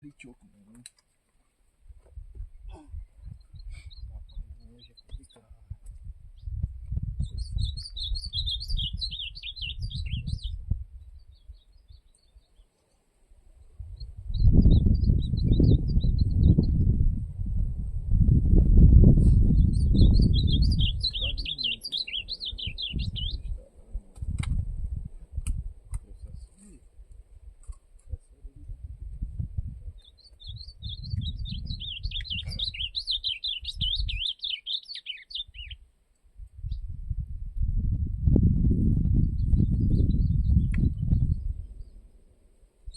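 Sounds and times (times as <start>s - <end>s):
low microphone rumble: 2.1s - 12.0s, 13.6s - 34.2s, 36.4s - 42.3s
bird singing warbled phrase: 2.6s - 5.5s, 7.2s - 12.6s, 14.0s - 16.8s, 19.5s - 24.1s, 29.9s - 35.8s.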